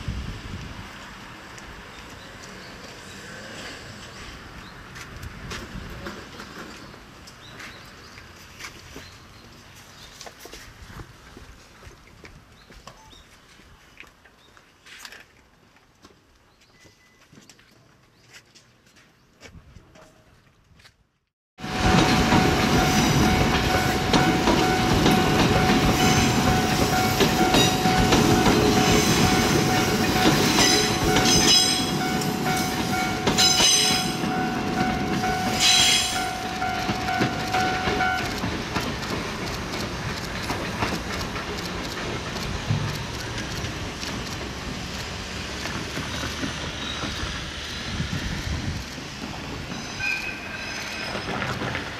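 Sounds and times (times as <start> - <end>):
train rumbling: 0.0 - 9.9, 21.6 - 51.9
wheels clicking over rail joints: 21.8 - 49.8.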